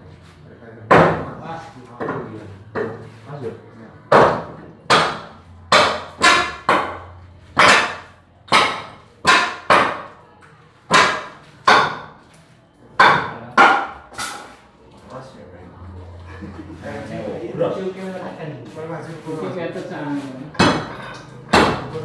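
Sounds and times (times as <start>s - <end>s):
hand tool striking wood: 4.1s - 10.1s, 10.9s - 12.3s, 13.0s - 14.6s, 20.6s - 22.0s.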